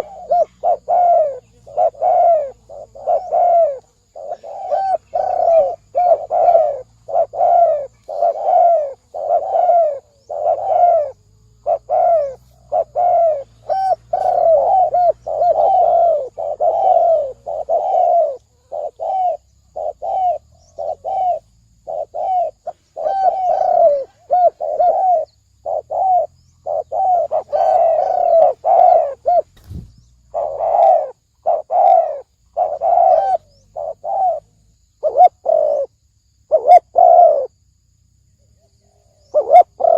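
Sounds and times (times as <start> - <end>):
doves cooing: 0.0 - 37.6, 38.8 - 39.9
faint low thump: 29.5 - 30.2.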